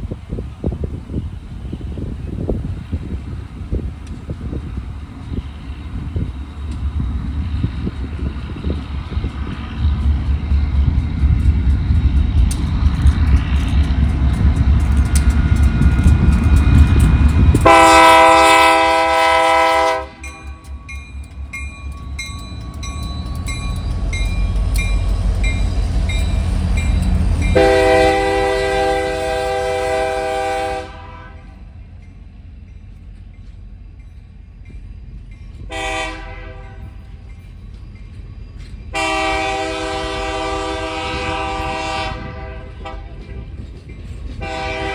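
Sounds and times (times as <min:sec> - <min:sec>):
train rumble: 0:00.0 - 0:44.9
train air horn blasts: 0:17.6 - 0:20.4, 0:27.4 - 0:31.7, 0:35.7 - 0:37.0, 0:38.9 - 0:43.5, 0:44.4 - 0:44.9.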